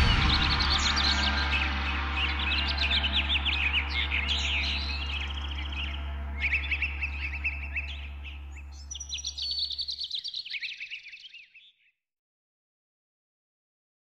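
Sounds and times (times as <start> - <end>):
low steady hum: 0.0 - 10.0
songbirds chirping and trilling: 0.0 - 12.0.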